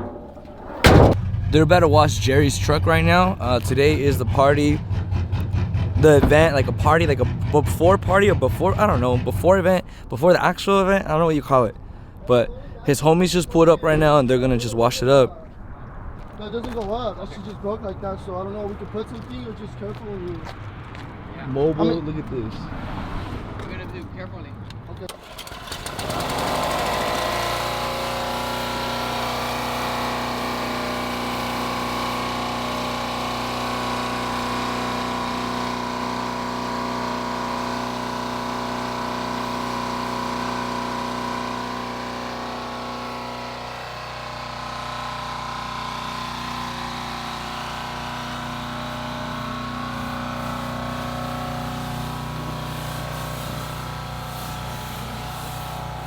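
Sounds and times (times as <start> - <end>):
motor-driven machine humming: 0.0 - 10.1.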